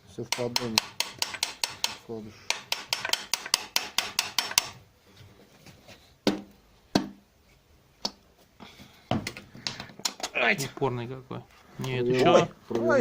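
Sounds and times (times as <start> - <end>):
sharp metal knocks ringing: 0.3 - 4.8.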